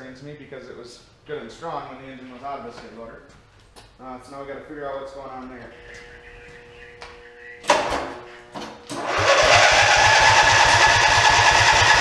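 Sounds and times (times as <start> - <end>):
engine cranking on starter: 8.9 - 12.0.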